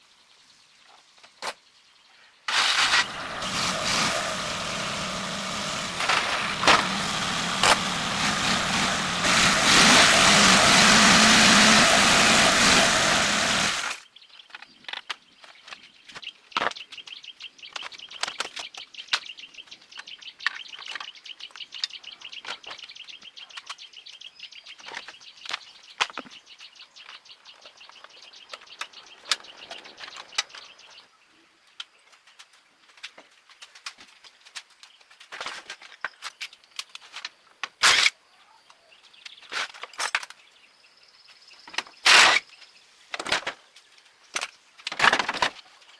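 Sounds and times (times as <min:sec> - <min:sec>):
birds chirping: 0:00.0 - 0:32.0
vehicle engine running: 0:02.5 - 0:14.0.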